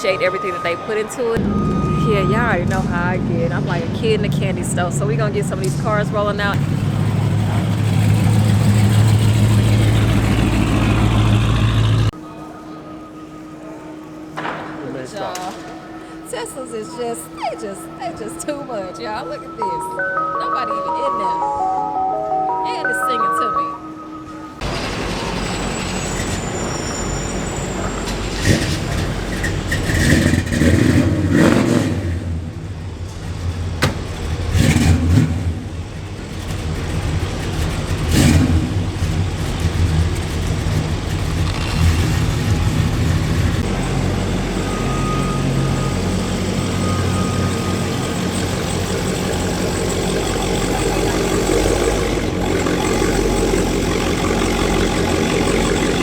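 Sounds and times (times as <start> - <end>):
car engines revving: 0.0 - 19.8, 24.3 - 56.0.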